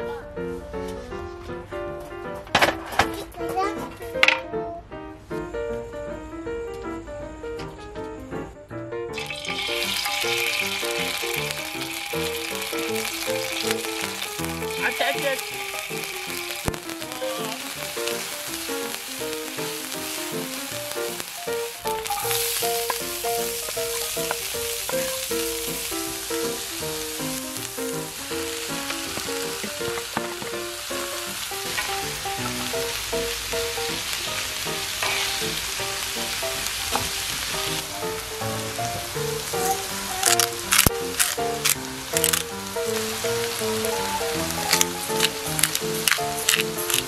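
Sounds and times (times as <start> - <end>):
light background melody: 0.0 - 47.0
meat and onion sizzling in oil: 9.1 - 47.0
spatula stirring in pan: 9.5 - 27.7.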